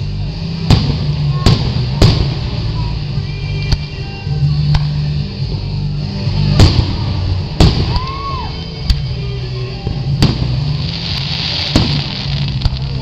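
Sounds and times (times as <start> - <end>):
music with bass line: 0.0 - 13.0
fireworks bursting: 0.4 - 4.0, 6.4 - 9.1, 9.9 - 13.0.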